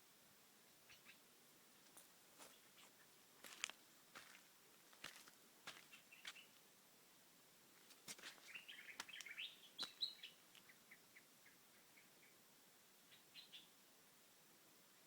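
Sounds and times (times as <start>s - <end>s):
small birds chirping: 0.7s - 3.2s, 5.7s - 6.6s, 7.8s - 13.8s.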